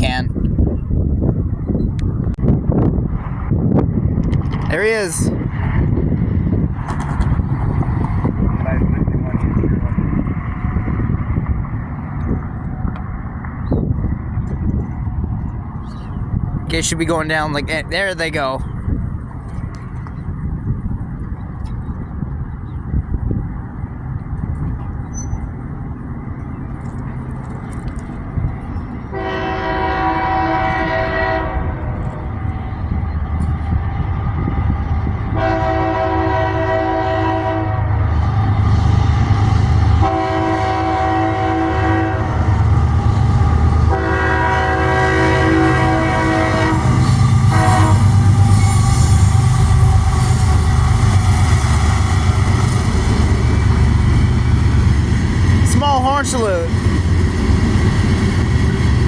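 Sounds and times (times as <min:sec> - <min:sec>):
diesel locomotive rumbling: 0:00.0 - 0:59.0
train air horn blasts: 0:29.1 - 0:31.8, 0:35.4 - 0:37.9, 0:40.0 - 0:42.6, 0:43.9 - 0:50.7.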